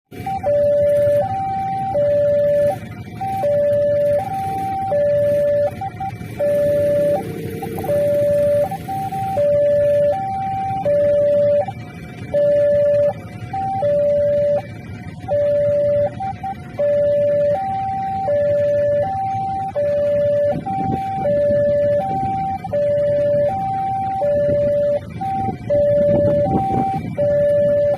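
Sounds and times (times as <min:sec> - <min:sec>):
level crossing alarm: 0:00.1 - 0:27.9
road traffic rumble: 0:00.1 - 0:27.9.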